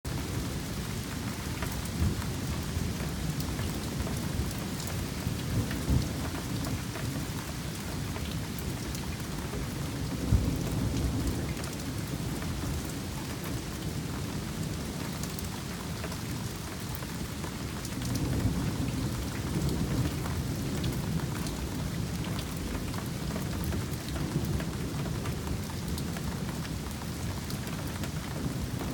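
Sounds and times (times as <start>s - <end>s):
raindrops ticking on a surface: 0.1s - 28.9s
steady rain falling: 0.1s - 28.9s
low rolls of thunder: 9.4s - 15.0s, 18.0s - 26.5s.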